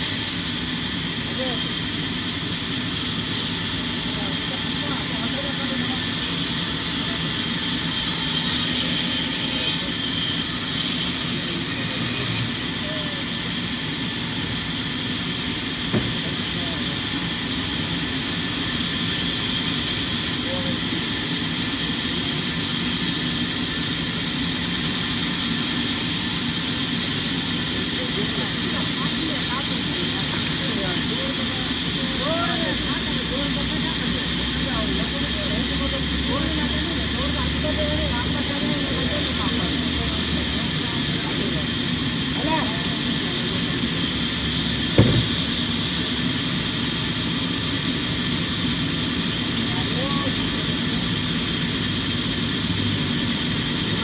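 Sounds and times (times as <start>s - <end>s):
sawmill machinery humming: 0.0s - 54.0s
thump: 15.9s - 16.2s, 45.0s - 45.5s.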